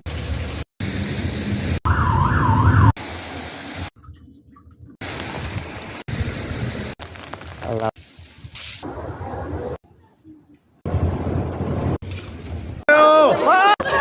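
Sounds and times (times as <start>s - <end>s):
siren wailing: 1.8s - 3.0s
rumbling street traffic: 5.0s - 12.9s.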